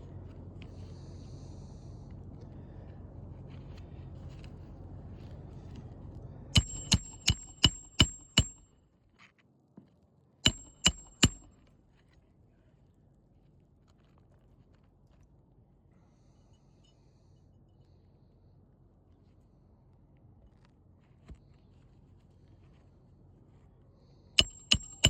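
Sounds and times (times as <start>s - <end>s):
hammer striking roofing nail: 6.6s - 8.6s, 10.5s - 11.5s, 24.4s - 25.0s.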